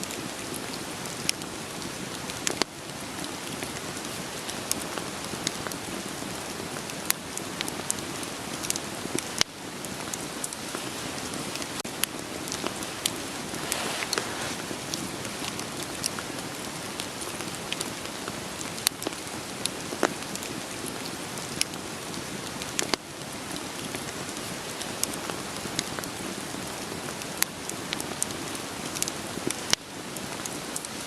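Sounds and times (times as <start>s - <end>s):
rain hissing: 0.0s - 31.0s
wood fire crackling: 0.0s - 31.0s.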